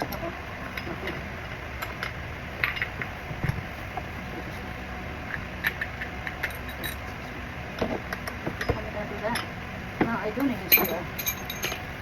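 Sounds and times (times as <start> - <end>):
metal tools clicking and clinking: 5.6 - 7.1, 10.4 - 11.9.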